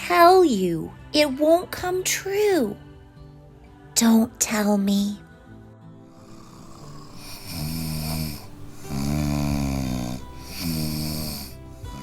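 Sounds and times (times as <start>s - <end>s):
breathing: 6.1s - 12.0s
person snoring: 6.1s - 12.0s.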